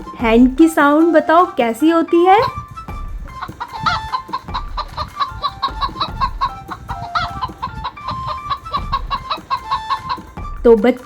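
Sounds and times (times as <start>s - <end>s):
hen clucking: 3.4s - 10.4s.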